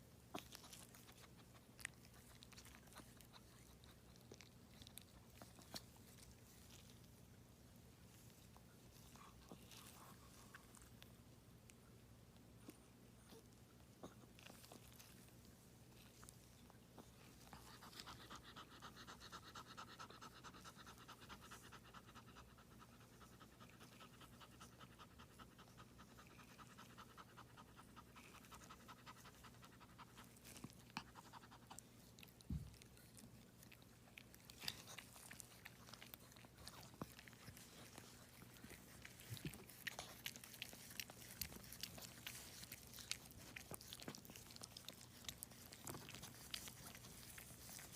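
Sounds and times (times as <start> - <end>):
dog panting: 17.0 - 47.9.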